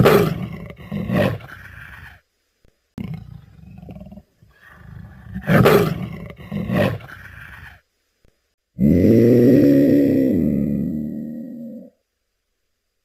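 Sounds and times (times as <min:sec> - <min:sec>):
wild animal roaring: 0:00.0 - 0:02.2, 0:03.0 - 0:07.8, 0:08.8 - 0:12.0.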